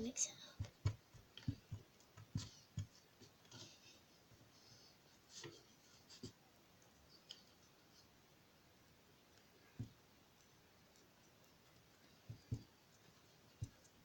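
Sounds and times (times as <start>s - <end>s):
stick stirring glue in bowl: 0.4s - 8.2s.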